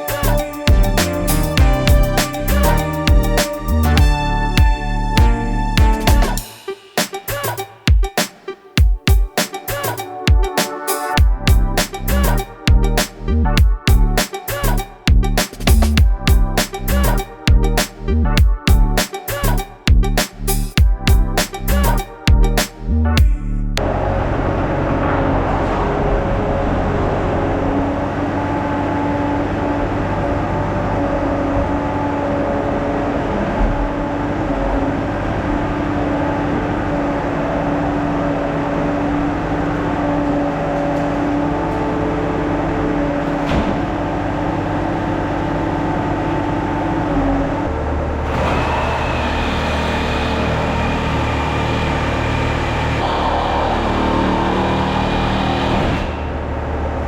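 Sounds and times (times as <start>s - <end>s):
skid steer engine running: 23.8s - 57.0s.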